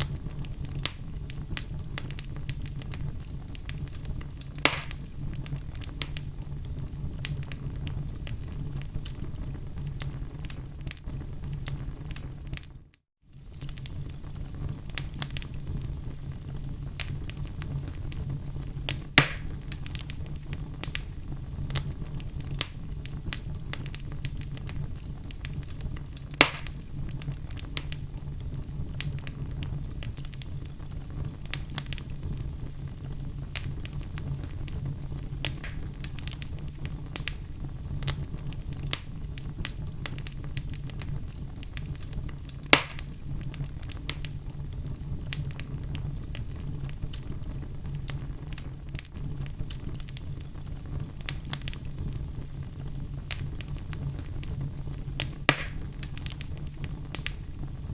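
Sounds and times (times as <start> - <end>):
low rumble of fire: 0.0 - 57.9
sharp snaps of fire: 0.0 - 57.9
wood logs crackling: 32.9 - 37.4.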